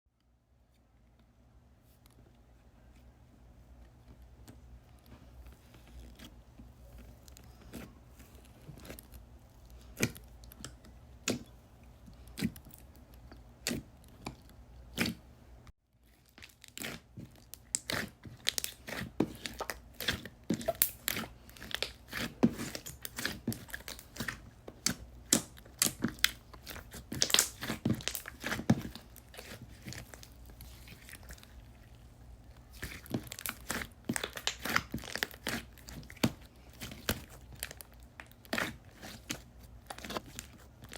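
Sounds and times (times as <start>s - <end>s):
slime clicking and popping: 27.1s - 29.0s.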